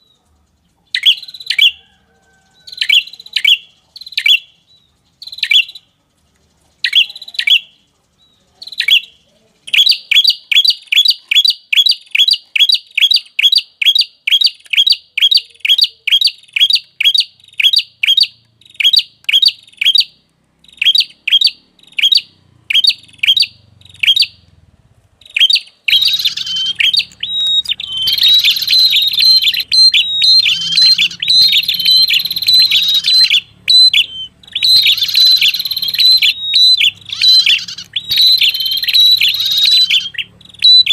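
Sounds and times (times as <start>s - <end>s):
warbler chirping and chattering: 0.0s - 24.5s, 25.2s - 40.9s.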